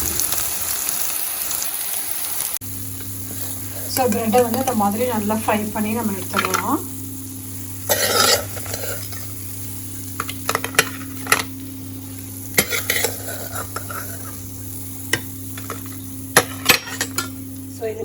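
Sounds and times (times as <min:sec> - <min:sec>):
bread cubes sizzling in oil: 0:00.0 - 0:18.0
spoon scraping pan: 0:07.8 - 0:09.4, 0:12.5 - 0:14.5, 0:15.1 - 0:17.4.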